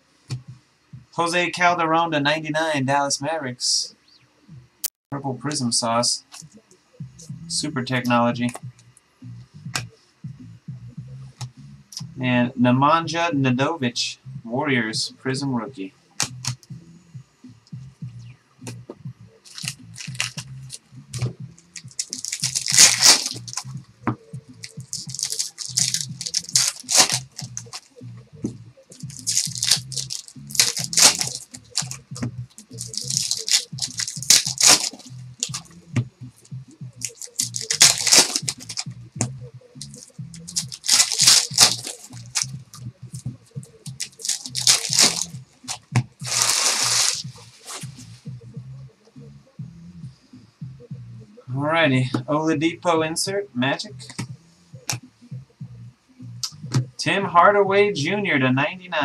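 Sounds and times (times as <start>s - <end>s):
background music: 0.0s - 59.0s
card packs being torn open: 19.5s - 20.8s, 21.7s - 23.7s, 24.6s - 28.0s, 28.9s - 35.7s, 37.0s - 38.8s, 39.8s - 42.5s, 43.8s - 47.2s
foil wrappers crinkling: 19.5s - 20.8s, 21.7s - 23.7s, 24.6s - 28.0s, 28.9s - 35.7s, 37.0s - 38.8s, 39.8s - 42.5s, 43.8s - 47.8s.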